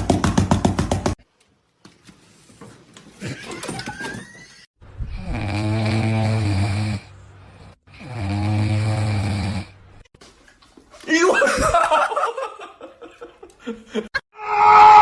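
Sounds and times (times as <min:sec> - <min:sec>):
person snoring loudly: 0:05.0 - 0:09.8.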